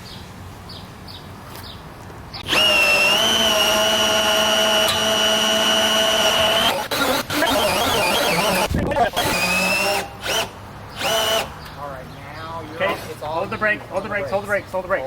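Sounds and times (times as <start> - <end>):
power drill whining: 2.4 - 11.5.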